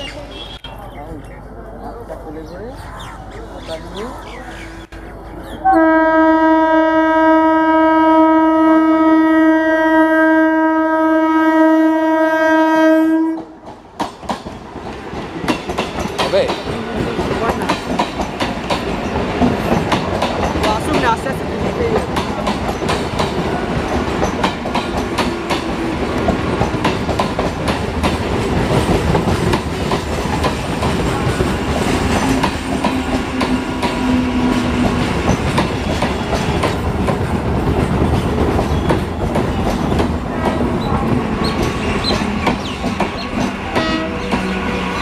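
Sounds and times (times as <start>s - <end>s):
train wheels clickety-clack: 13.3s - 45.0s.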